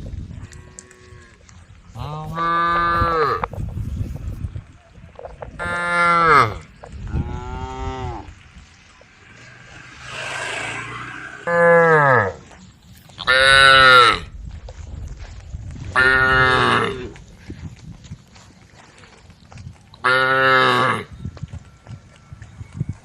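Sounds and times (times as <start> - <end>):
cattle mooing: 5.6 - 8.4, 9.1 - 12.4, 16.0 - 17.2, 20.0 - 21.1.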